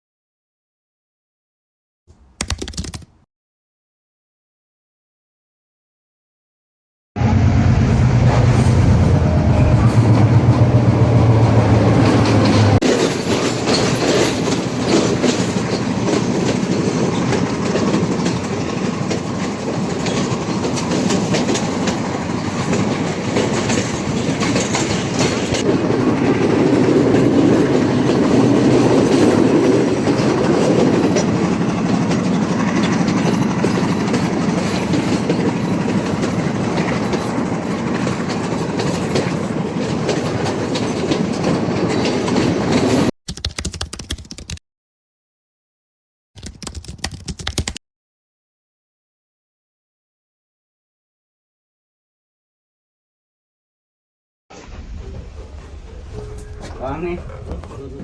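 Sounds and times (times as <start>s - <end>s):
low hum: 7.2s - 12.8s
train wheels clattering on rails: 9.8s - 43.1s.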